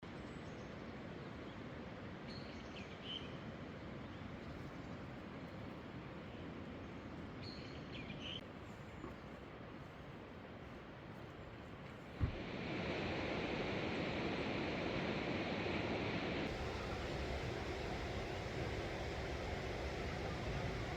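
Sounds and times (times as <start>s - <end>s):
waterfall rushing: 12.4s - 20.9s.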